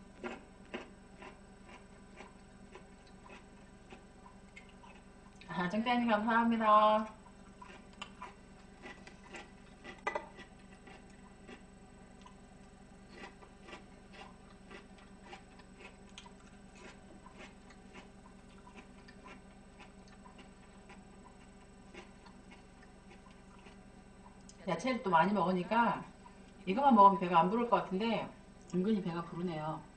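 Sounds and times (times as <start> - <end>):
faint steady hum: 0.0 - 29.9
quiet chewing: 0.1 - 5.5, 7.0 - 24.6, 28.6 - 28.8.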